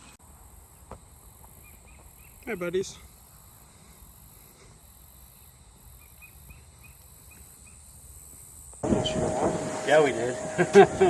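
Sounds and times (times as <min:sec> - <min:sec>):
insects buzzing: 0:00.0 - 0:11.0
low wind rumble: 0:08.8 - 0:11.0.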